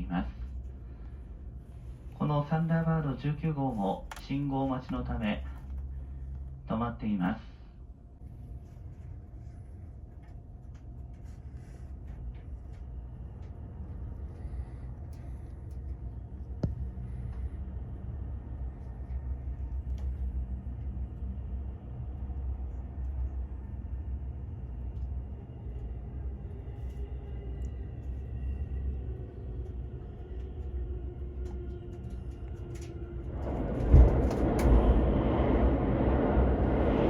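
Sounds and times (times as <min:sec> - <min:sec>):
train car rumble: 0:00.0 - 0:37.0.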